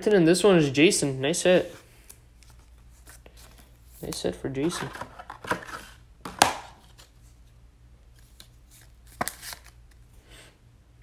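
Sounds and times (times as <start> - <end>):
trading cards tapping and rustling: 3.4 - 7.1, 8.2 - 9.8.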